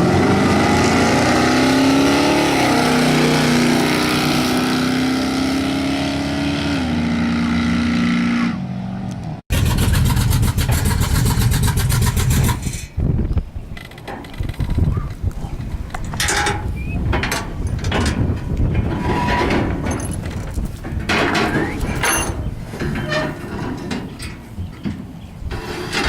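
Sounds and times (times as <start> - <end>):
engine at full throttle: 0.0 - 12.7
rough pulsing engine: 0.0 - 12.9.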